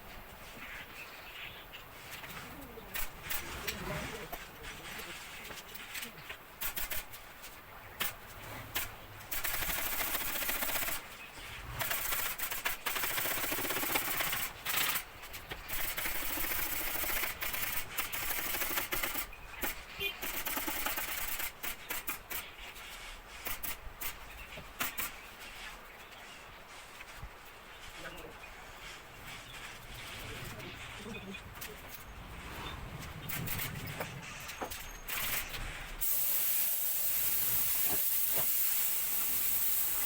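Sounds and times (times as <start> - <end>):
sharp tool clicks: 6.6 - 7.1, 15.7 - 22.5
air tool hissing: 35.1 - 40.0.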